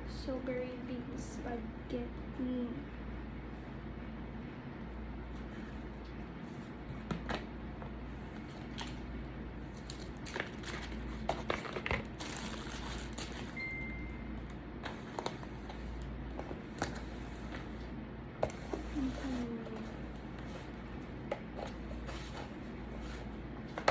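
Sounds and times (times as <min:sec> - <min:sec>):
steady low hum: 0:00.0 - 0:23.9
food packaging crinkling: 0:08.5 - 0:13.7
brief high tone: 0:13.6 - 0:14.3.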